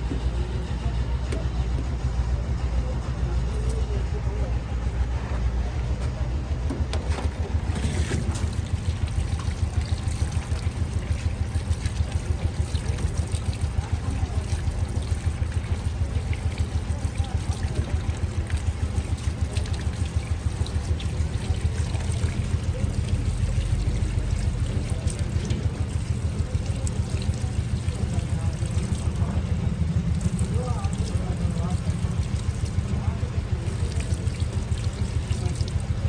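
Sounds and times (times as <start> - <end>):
low pulsing mechanical throb: 0.0 - 36.0.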